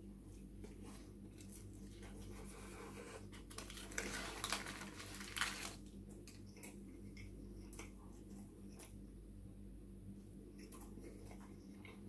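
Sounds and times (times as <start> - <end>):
low steady hum: 0.0 - 12.0
paper rustling: 1.4 - 5.9.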